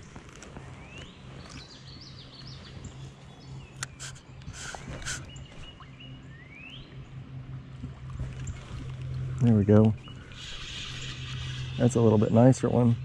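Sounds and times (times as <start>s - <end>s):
gear clicks and rustles: 0.0s - 5.7s
songbird singing: 0.0s - 13.0s.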